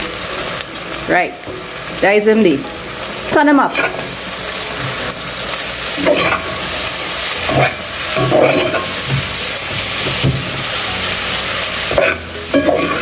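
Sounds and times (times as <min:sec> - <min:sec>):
vegetables sizzling in hot oil: 0:00.0 - 0:13.0
metal spoon scraping a pot: 0:06.0 - 0:06.6, 0:07.5 - 0:09.0, 0:11.9 - 0:13.0.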